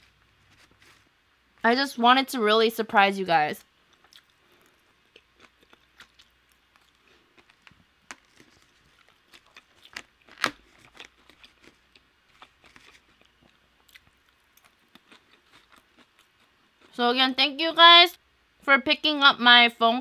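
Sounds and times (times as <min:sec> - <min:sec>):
chewing green beans: 0:03.9 - 0:17.0.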